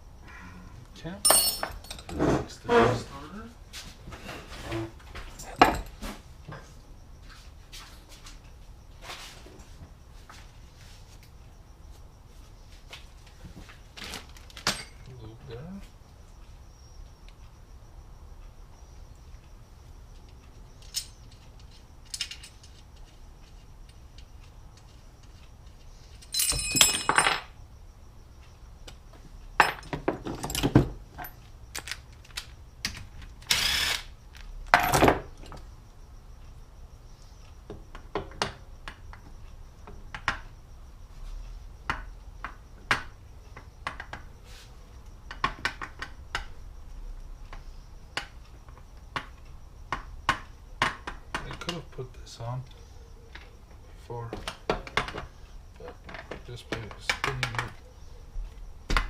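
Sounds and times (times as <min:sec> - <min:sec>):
metal tools clinking and rattling: 0:01.2 - 0:02.6, 0:14.5 - 0:15.2, 0:20.8 - 0:23.6, 0:26.1 - 0:27.5.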